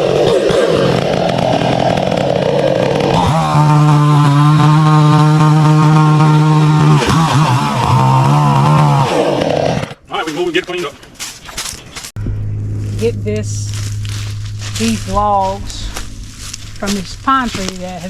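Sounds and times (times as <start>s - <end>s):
chainsaw cutting wood: 0.0s - 10.0s.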